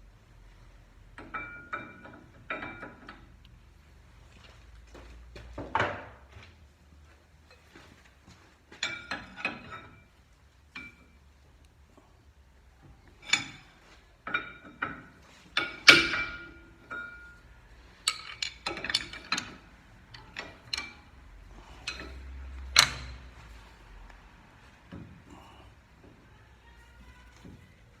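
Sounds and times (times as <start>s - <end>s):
metal tools clinking and knocking: 1.2s - 3.4s, 8.8s - 10.1s, 13.1s - 23.4s.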